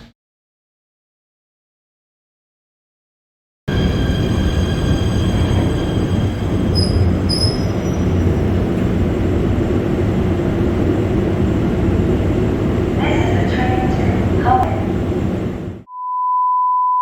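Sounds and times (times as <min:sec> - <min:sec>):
wheel squeal: 0:03.7 - 0:09.8
train rumbling: 0:03.7 - 0:15.9.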